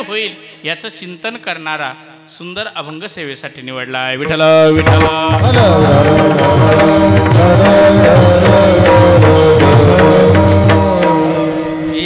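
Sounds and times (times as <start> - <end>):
harmonium melody: 4.8 - 12.0.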